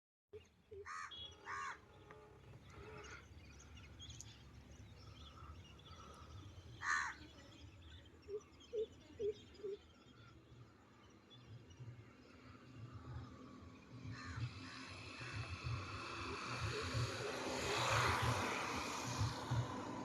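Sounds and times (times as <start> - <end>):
crows cawing: 0.8 - 2.0, 5.9 - 7.2, 14.1 - 15.4.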